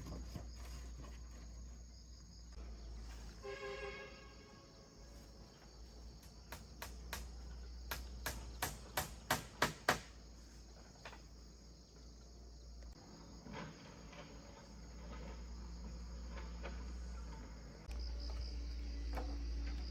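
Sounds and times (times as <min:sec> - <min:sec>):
crickets chirring: 0:00.0 - 0:19.9
sharp knocks: 0:06.5 - 0:10.2.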